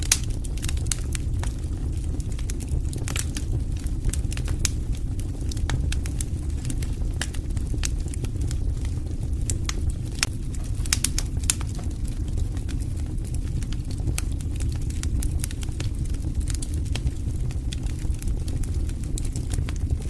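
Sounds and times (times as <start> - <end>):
low rumble: 0.0 - 20.0
wood fire crackling: 0.0 - 20.0.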